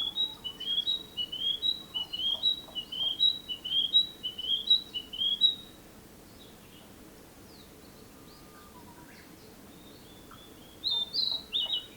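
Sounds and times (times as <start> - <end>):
bird whistling song: 0.0 - 5.7, 8.2 - 11.9.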